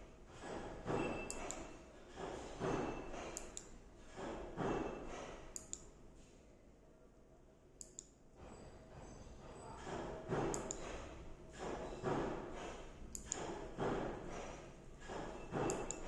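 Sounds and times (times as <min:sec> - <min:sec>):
sharp short clicks: 0:01.3 - 0:01.7, 0:05.6 - 0:05.9, 0:13.1 - 0:13.6.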